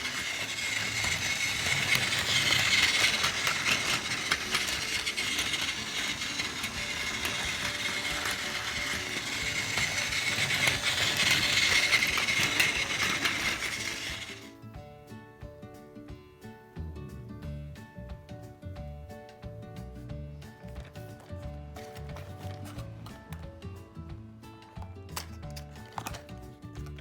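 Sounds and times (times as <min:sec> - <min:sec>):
toy train motor whirring: 0:00.0 - 0:14.5, 0:20.7 - 0:23.4, 0:25.2 - 0:27.0.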